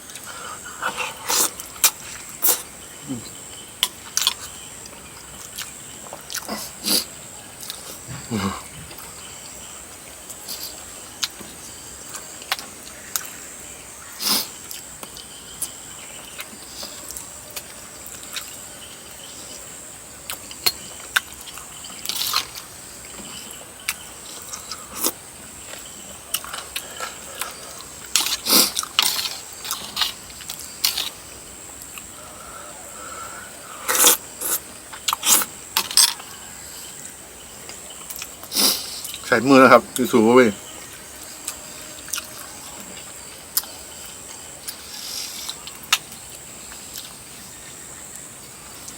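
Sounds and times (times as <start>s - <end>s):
person chewing and slurping: 0.0s - 3.2s, 20.3s - 32.2s, 33.7s - 36.2s.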